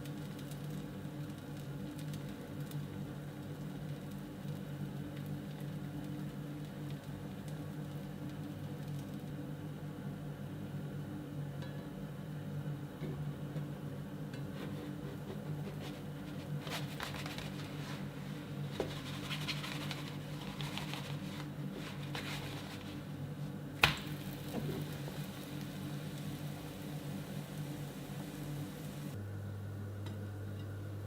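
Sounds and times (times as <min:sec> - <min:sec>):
scraping and clicking handling noises: 0:14.4 - 0:23.1
low hum: 0:24.2 - 0:31.0.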